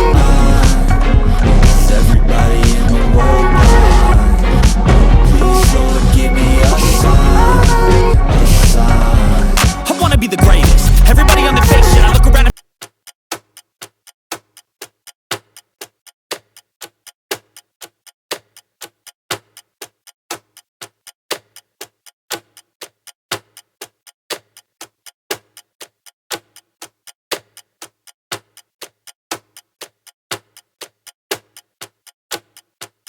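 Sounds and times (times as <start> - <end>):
music: 0.0 - 12.5
clock ticking: 0.0 - 33.0.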